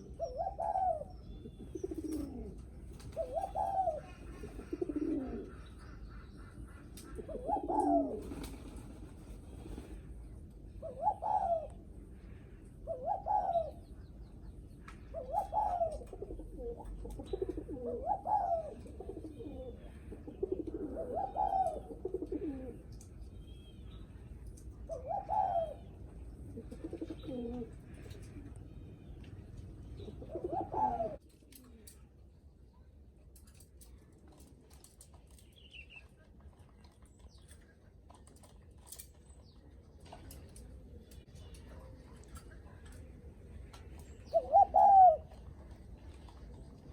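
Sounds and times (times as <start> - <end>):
dove cooing: 0.0 - 10.1, 10.7 - 14.0, 15.0 - 22.9, 24.8 - 28.5, 29.9 - 32.0, 44.2 - 46.8.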